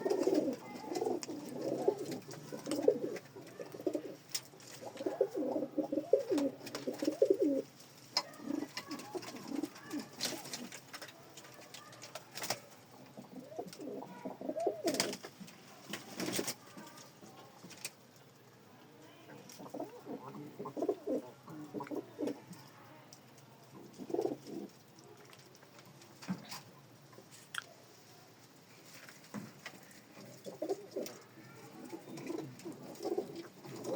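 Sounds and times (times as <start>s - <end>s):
pigeons cooing: 0.0s - 11.0s, 12.4s - 15.2s, 19.6s - 22.4s, 23.8s - 24.8s, 30.0s - 33.9s.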